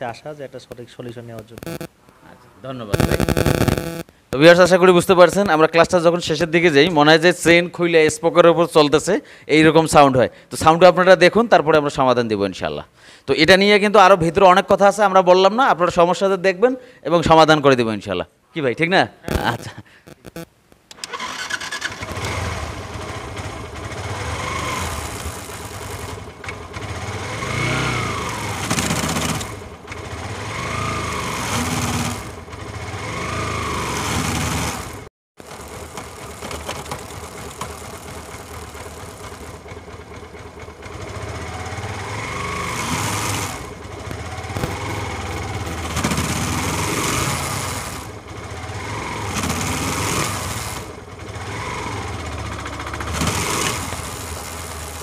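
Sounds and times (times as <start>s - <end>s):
motorcycle engine revving: 1.6s - 1.9s, 21.2s - 55.0s
harsh grinding rattle: 21.0s - 55.0s.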